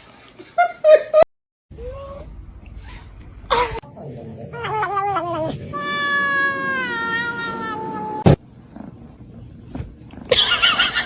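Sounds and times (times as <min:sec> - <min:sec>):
cat yowling: 0:04.6 - 0:08.2.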